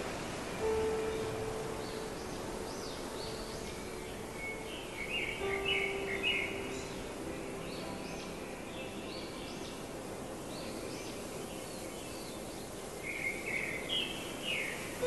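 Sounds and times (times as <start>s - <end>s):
outdoor background hiss: 0.0s - 15.0s
birds chirping: 0.2s - 15.0s.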